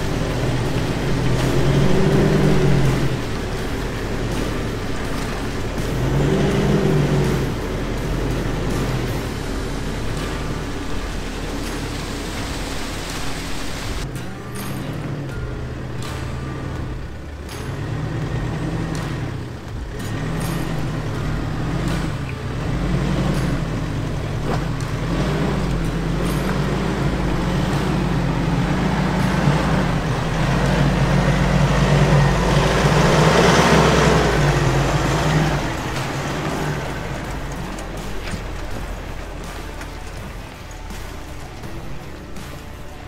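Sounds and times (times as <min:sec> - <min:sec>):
vehicle engine under load: 0:00.0 - 0:43.0.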